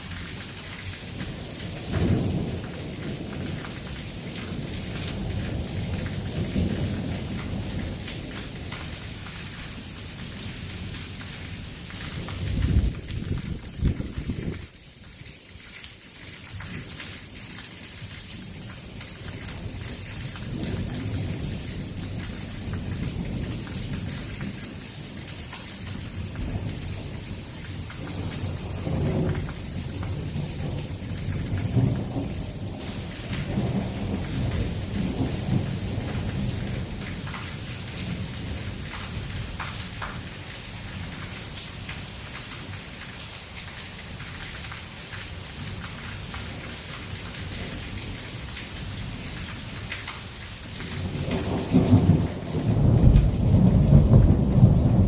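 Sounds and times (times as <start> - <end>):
steady heavy rain: 0.0 - 55.0
low rolling thunder: 12.2 - 14.7, 26.1 - 37.2, 50.8 - 55.0.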